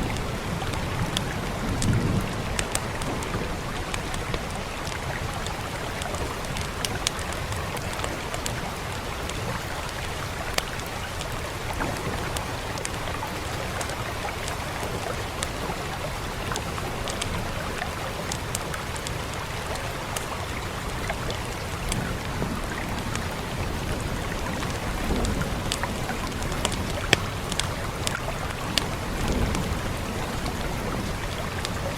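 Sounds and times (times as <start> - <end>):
wood fire crackling: 0.0 - 23.3, 24.2 - 30.5
rain hiss: 0.0 - 31.9.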